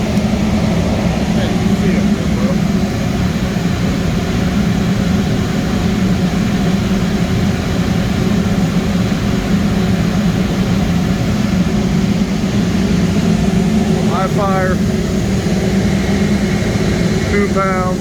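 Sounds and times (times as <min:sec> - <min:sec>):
boiler burners and blowers running: 0:00.0 - 0:18.0.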